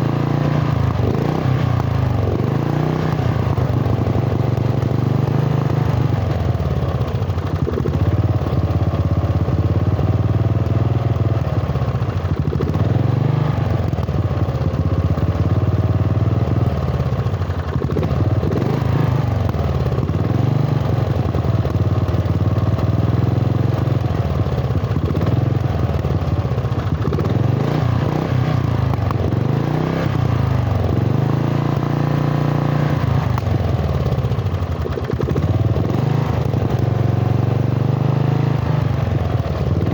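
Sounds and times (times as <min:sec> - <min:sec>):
lawn tractor engine revving: 0:00.0 - 0:06.5, 0:25.0 - 0:39.9.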